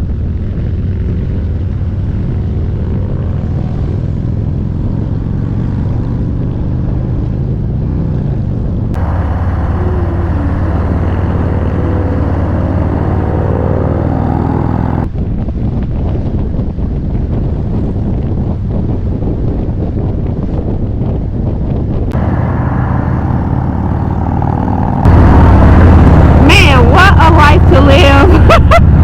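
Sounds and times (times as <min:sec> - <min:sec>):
motorcycle engine rumbling: 0:00.0 - 0:15.1, 0:22.1 - 0:29.0.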